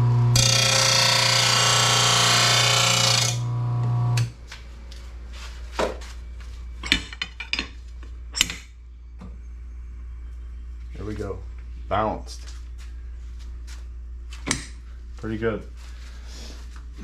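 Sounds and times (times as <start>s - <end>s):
grinding wheel hissing on blade: 0.0s - 4.2s
motor humming: 0.0s - 4.3s
metal clinks and knocks: 6.8s - 8.7s.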